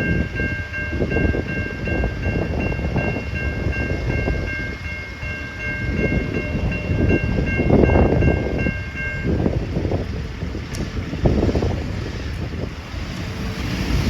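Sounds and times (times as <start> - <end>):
electronic crossing bell dinging: 0.0 - 9.6.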